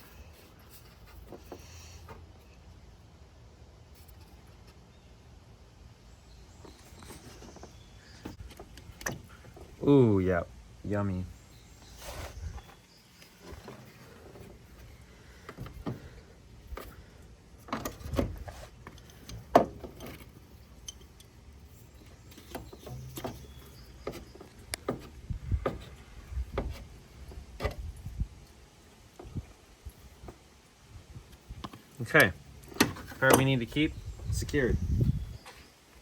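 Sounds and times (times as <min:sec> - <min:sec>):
hand tools clicking and knocking: 0:31.6 - 0:33.7.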